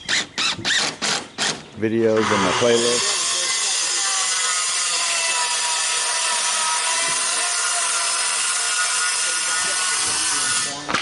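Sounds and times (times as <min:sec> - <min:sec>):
power saw cutting plywood: 0:00.0 - 0:11.0.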